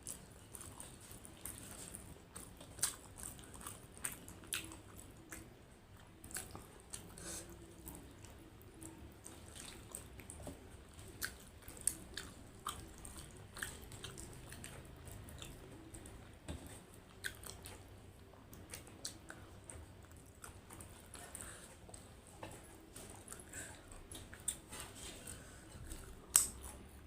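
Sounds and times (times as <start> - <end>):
person chewing food: 0.0 - 27.0
soft mouth clicks: 26.3 - 26.8.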